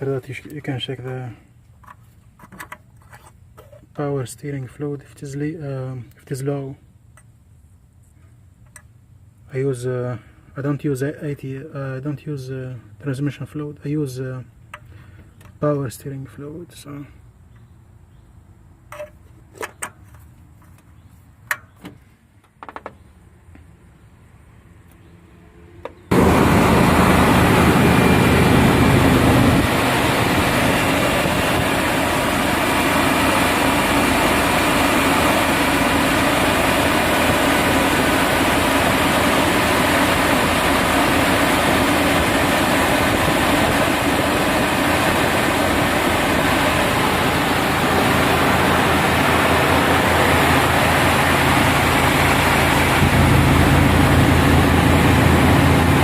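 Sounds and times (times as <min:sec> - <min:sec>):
pickup engine starting and idling: 0:26.1 - 0:56.0.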